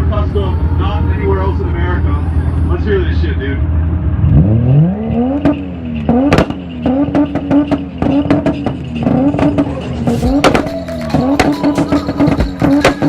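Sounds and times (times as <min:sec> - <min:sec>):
car engine revving: 0:00.0 - 0:13.0
exhaust pops and cracks: 0:05.4 - 0:13.0.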